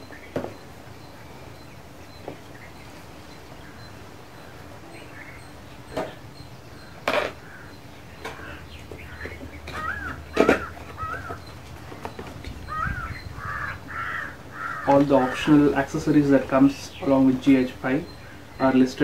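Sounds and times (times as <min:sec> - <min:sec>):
outdoor hush: 0:00.0 - 0:19.0
small birds chirping: 0:00.0 - 0:19.0
crow cawing: 0:07.4 - 0:11.4, 0:12.6 - 0:15.5.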